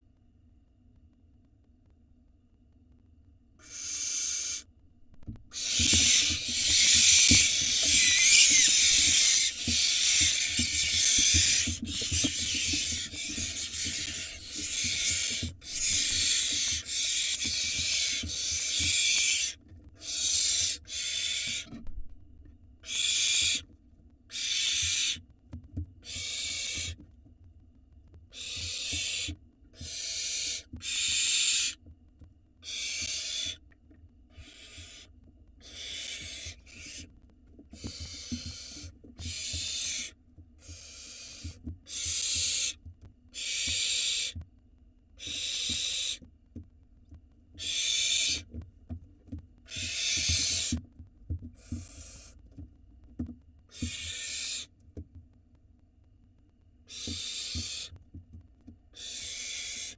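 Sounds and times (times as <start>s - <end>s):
owl chicks hissing calls: 3.6s - 4.7s, 5.5s - 21.8s, 22.8s - 23.6s, 24.3s - 25.2s, 26.0s - 27.0s, 28.3s - 31.8s, 32.6s - 33.6s, 34.3s - 37.1s, 37.7s - 44.4s, 45.2s - 46.2s, 47.6s - 48.5s, 49.7s - 50.8s, 51.6s - 52.4s, 53.7s - 54.7s, 56.9s - 57.9s, 58.9s - 59.9s.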